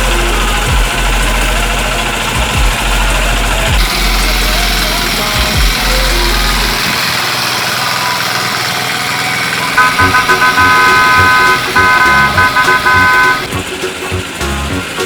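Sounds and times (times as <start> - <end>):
steady noisy background: 0.0 - 15.0
vehicle horn honking: 9.7 - 13.6.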